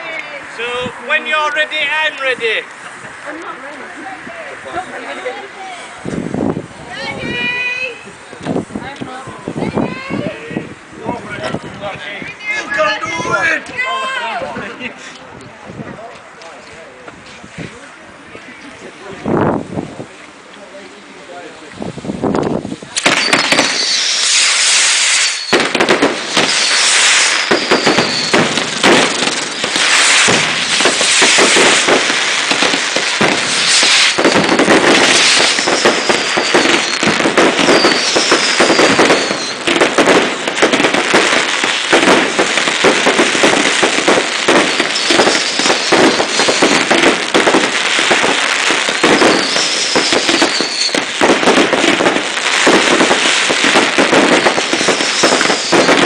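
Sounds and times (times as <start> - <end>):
fireworks crackling: 0.0 - 56.0
fireworks launches and bangs: 22.2 - 56.0
falling firework whistle: 22.9 - 56.0.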